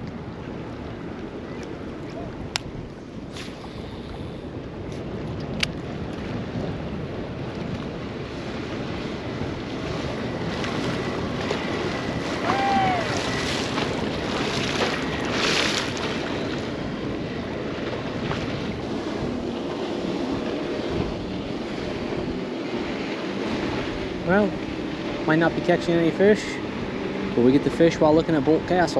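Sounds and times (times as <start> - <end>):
water lapping around a boat: 0.0 - 28.9
wind on the microphone: 0.0 - 28.9.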